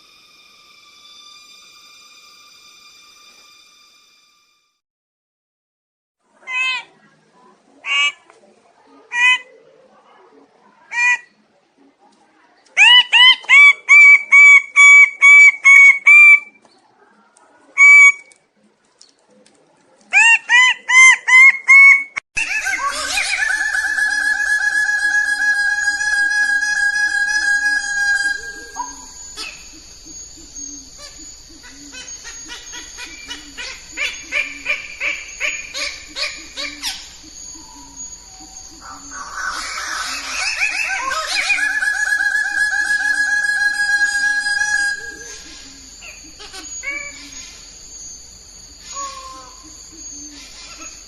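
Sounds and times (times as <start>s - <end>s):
bird calling arched notes: 20.2s - 51.0s.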